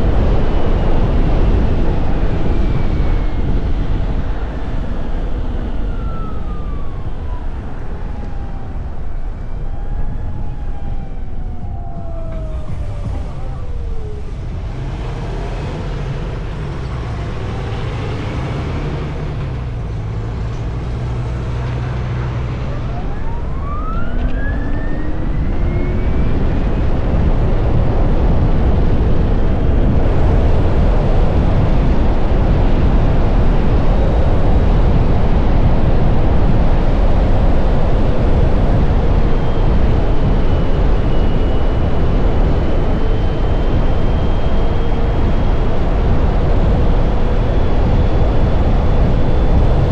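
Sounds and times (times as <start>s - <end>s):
rushing wind noise: 0.0s - 49.9s.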